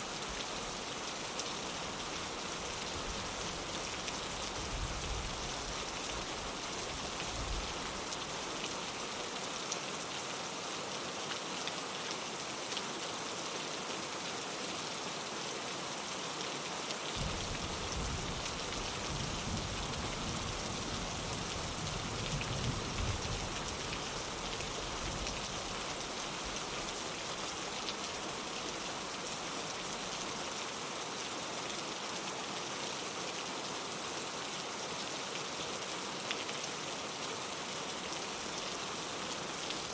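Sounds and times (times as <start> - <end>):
rain on a window: 0.0 - 39.9
distant thunder rumble: 17.2 - 18.4.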